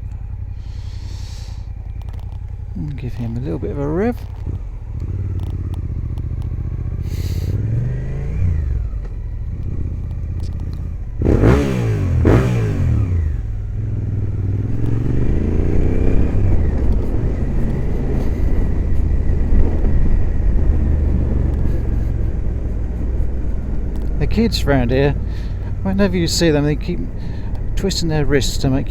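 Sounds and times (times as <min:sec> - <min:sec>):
motorcycle engine revving: 0:00.0 - 0:28.9
wind rumble on microphone: 0:12.2 - 0:25.9.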